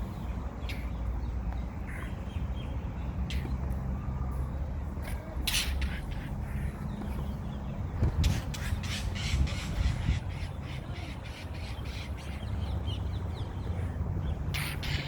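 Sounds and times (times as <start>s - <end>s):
blue jay harsh scolding calls: 8.4s - 12.4s.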